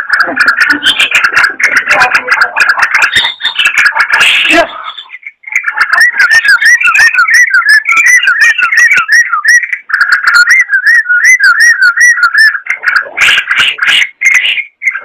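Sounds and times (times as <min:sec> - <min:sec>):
bird singing whistled notes: 0:04.4 - 0:12.7.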